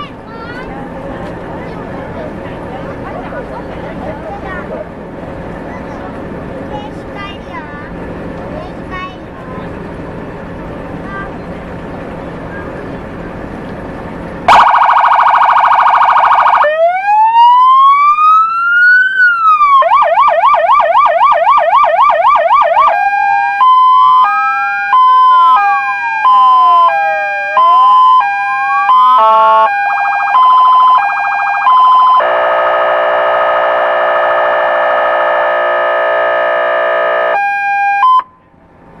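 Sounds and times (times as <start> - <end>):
police siren wailing and yelping: 14.5 - 38.4
buzzy horn tone: 32.2 - 37.4.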